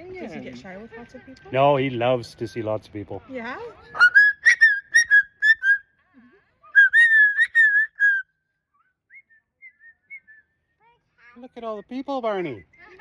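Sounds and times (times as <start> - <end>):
cockatoo whistling: 4.0 - 5.9, 6.6 - 10.6.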